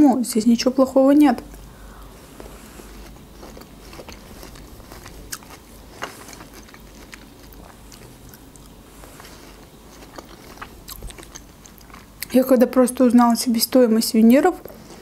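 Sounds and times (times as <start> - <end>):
chewing juicy melon: 2.2 - 12.6.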